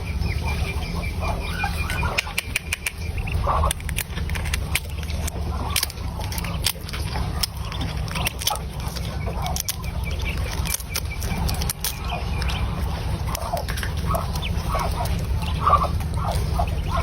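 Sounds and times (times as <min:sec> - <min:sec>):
birds making short calls: 0:00.0 - 0:17.0
steady low hum: 0:00.0 - 0:17.0
sharp clicks and taps: 0:02.2 - 0:03.0.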